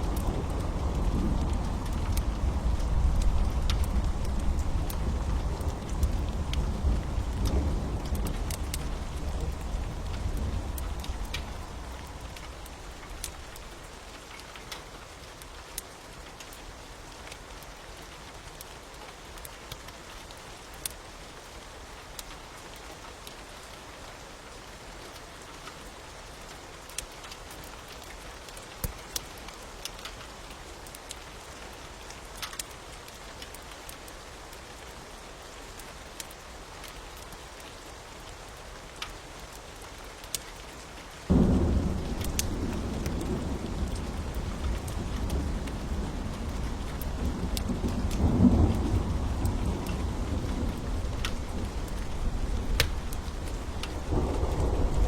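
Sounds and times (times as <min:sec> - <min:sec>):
fire popping and crackling: 0:00.0 - 0:13.9, 0:41.3 - 0:55.0
rain hissing: 0:00.0 - 0:14.6, 0:37.7 - 0:55.0.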